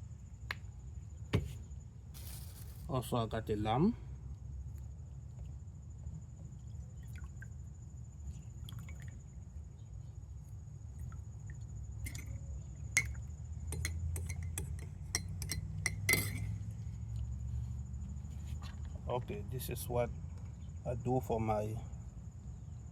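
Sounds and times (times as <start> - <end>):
steady low hum: 0.0 - 22.9
glassware and dishes clinking: 12.1 - 12.4, 13.7 - 16.7.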